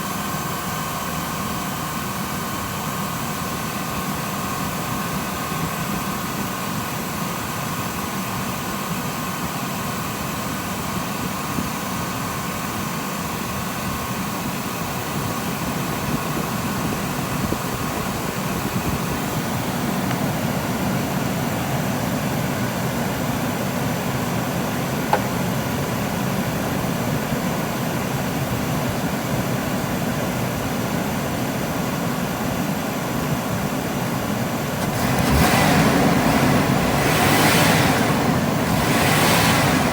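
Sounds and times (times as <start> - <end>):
car engine idling: 34.2 - 39.9.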